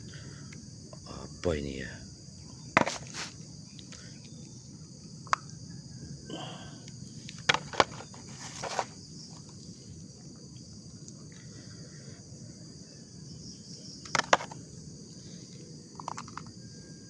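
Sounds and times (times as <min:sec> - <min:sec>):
insects chirring: 0:00.0 - 0:17.0
plastic toys clicking and rustling: 0:07.4 - 0:08.8, 0:14.1 - 0:14.6, 0:16.0 - 0:16.5.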